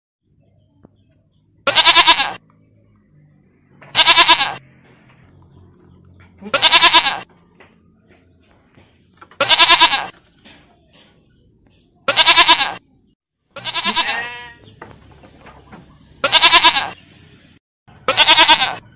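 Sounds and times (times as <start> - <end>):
goat bleating: 1.6 - 2.4, 3.9 - 4.6, 6.4 - 7.3, 9.4 - 10.2, 12.1 - 12.8, 13.5 - 14.7, 16.2 - 17.0, 18.1 - 18.9.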